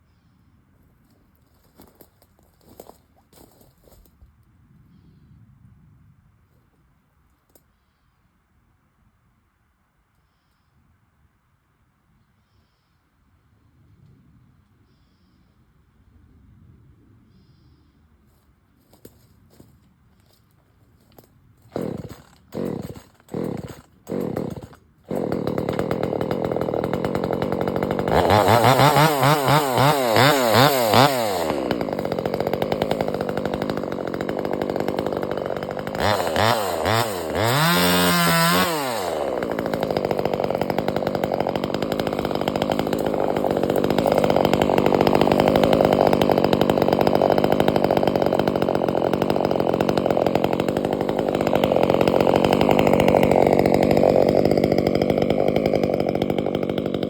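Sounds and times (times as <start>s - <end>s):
chainsaw pull-start sputtering: 21.1s - 57.0s
chainsaw engine revving and running: 21.7s - 57.0s.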